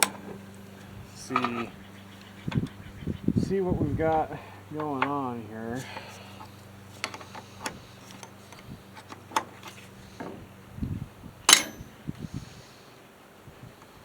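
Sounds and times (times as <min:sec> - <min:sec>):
hand tools clicking on metal: 0:01.2 - 0:02.8, 0:04.0 - 0:10.0, 0:11.5 - 0:12.0.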